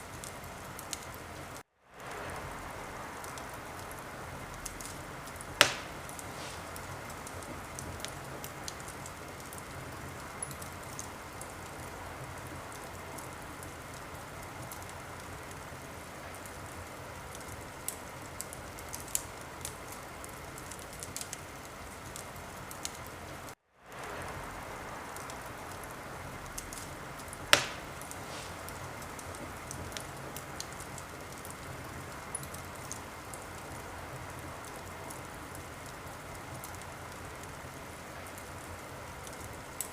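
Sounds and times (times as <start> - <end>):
wood fire hissing and crackling: 0.0 - 39.9
loud pops from fire: 0.1 - 15.6, 23.9 - 33.8.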